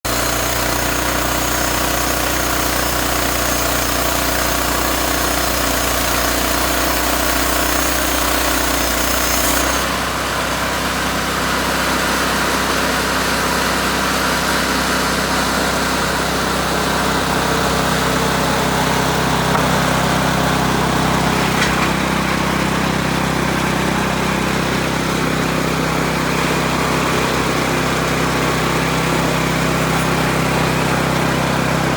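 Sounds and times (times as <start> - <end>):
small engine sawing wood: 0.0 - 31.9.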